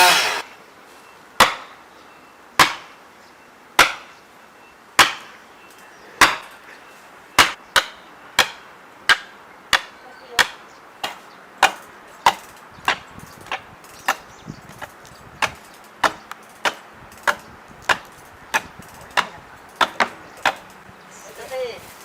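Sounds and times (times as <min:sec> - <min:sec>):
tool striking wood: 0:01.4 - 0:01.7, 0:02.6 - 0:02.9, 0:03.8 - 0:04.1, 0:05.0 - 0:05.3, 0:06.2 - 0:06.5, 0:07.4 - 0:20.6.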